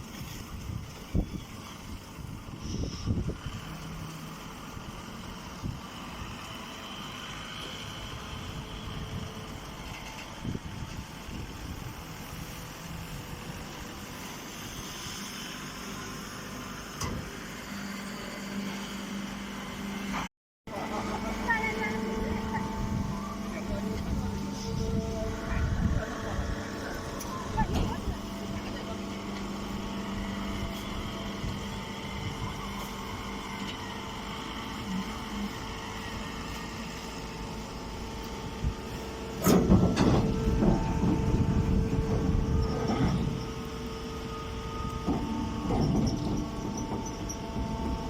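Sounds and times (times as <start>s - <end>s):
baler machine drone: 0.2s - 48.0s
machine hum: 17.7s - 48.0s.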